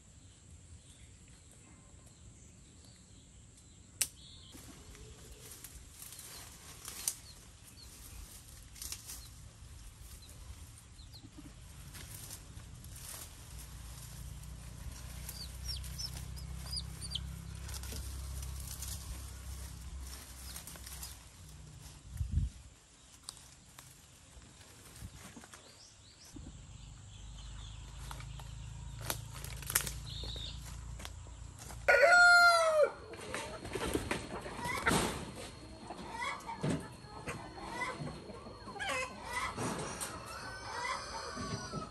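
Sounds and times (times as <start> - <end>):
low hum: 4.6 - 22.7
high bird chirps: 15.2 - 17.8.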